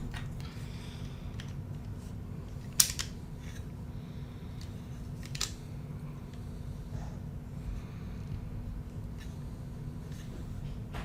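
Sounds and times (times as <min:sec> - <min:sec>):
plastic pieces clicking: 0:02.5 - 0:03.2, 0:05.2 - 0:05.6.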